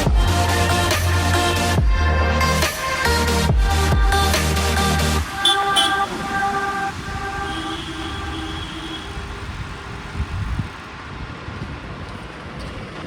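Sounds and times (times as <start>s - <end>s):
road traffic noise: 0.0s - 13.0s
vehicle horn: 5.2s - 9.9s.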